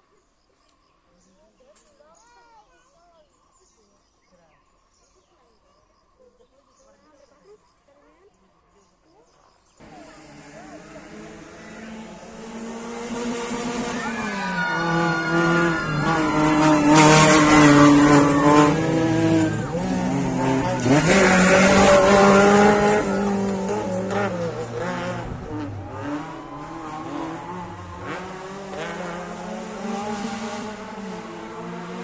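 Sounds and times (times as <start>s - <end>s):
rally car engine revving: 9.8s - 32.0s.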